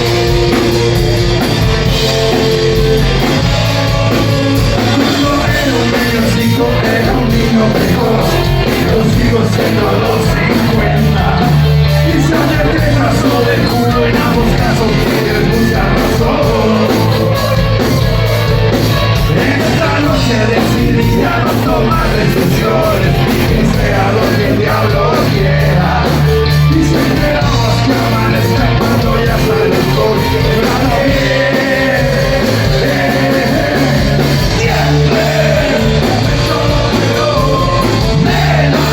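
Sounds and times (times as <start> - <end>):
rock band playing: 0.0 - 38.9
person singing: 2.2 - 17.8, 19.3 - 38.9
shouted vocals: 19.2 - 38.9.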